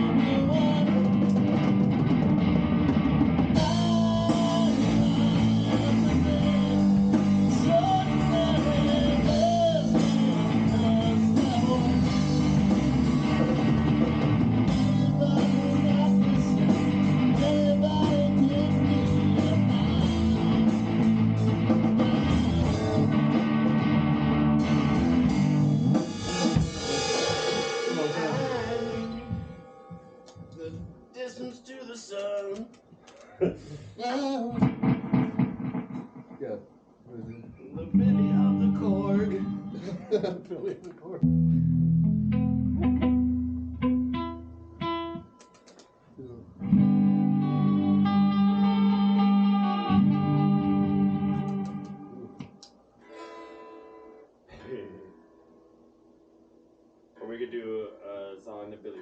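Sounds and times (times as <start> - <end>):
band playing rock music: 0.0 - 31.0, 34.6 - 36.3, 37.9 - 40.2, 46.6 - 52.6.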